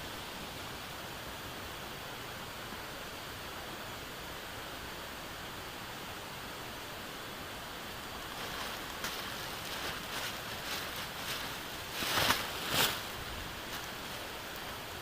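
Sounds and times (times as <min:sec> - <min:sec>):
river rushing: 0:07.2 - 0:15.0
light rustling and clicks: 0:08.2 - 0:13.0.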